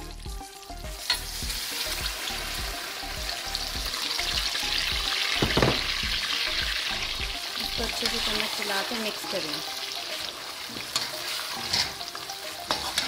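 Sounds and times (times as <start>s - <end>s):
semolina sizzling in hot oil: 0.0s - 13.0s
low knock: 5.4s - 6.1s.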